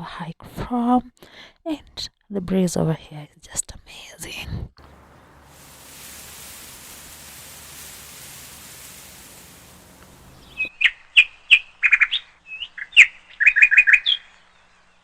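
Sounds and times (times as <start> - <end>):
breeze hiss on microphone: 4.8 - 10.7.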